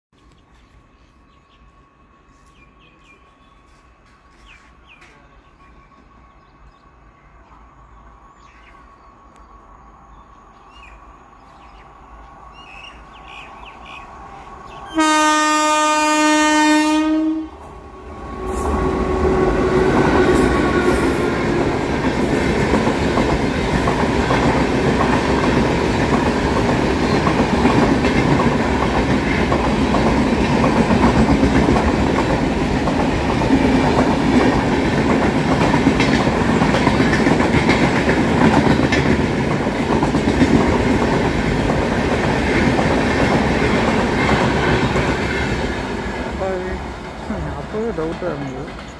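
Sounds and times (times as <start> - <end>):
train coaches rumbling past: 0.2 - 48.9
train horn blast: 14.9 - 17.7
wheels clattering on rails: 19.8 - 46.4.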